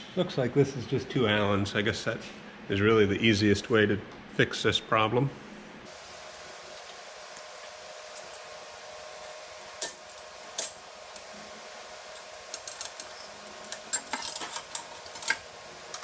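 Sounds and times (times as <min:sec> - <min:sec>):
faint steady hum: 0:05.3 - 0:16.0.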